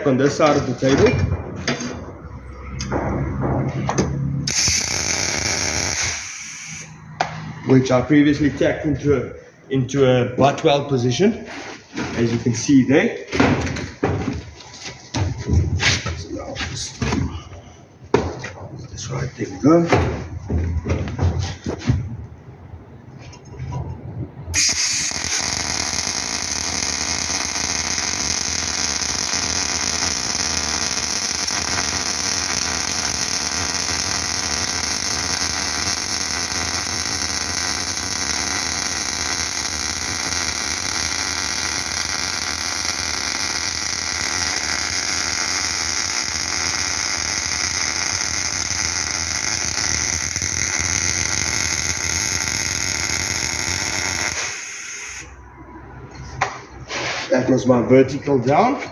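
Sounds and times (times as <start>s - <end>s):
welding arc hissing: 4.4s - 7.0s, 24.5s - 55.4s.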